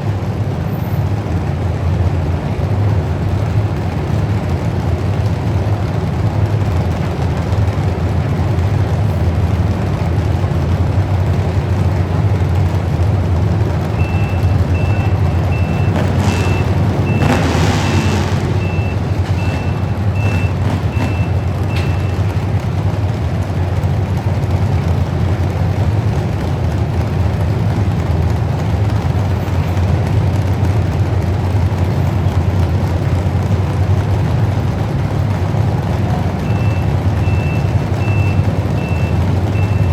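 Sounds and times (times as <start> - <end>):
heavy truck engine running: 0.0 - 39.9
reversing alarm beeping: 14.0 - 22.5, 36.4 - 39.9.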